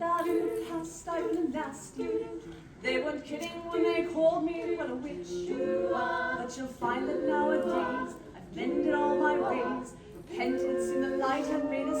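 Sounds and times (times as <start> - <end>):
voices singing a cappella harmony: 0.0 - 12.0.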